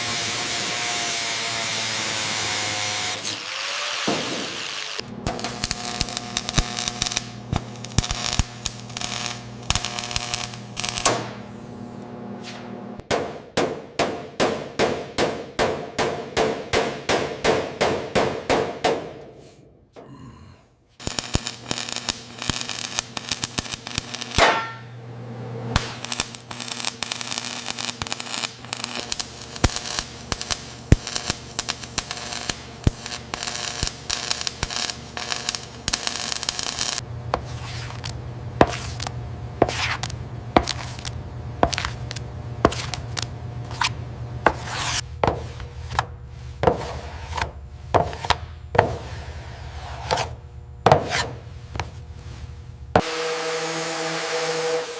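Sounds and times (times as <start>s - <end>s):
steady low hum: 5.0s - 13.0s, 20.0s - 53.0s
hand tool scraping and rubbing: 37.4s - 52.5s.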